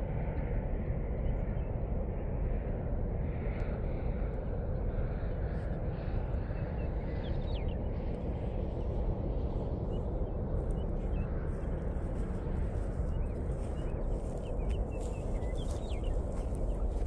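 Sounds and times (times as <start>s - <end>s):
low rumble: 0.0s - 17.0s
small birds chirping: 6.0s - 17.0s.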